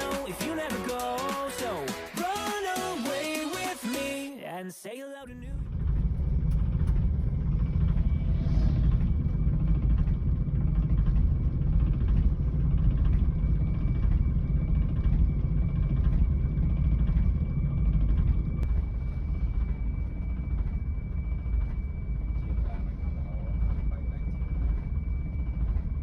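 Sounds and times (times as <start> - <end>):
faint high whine: 5.3 - 26.0
vehicle rumble: 5.3 - 26.0.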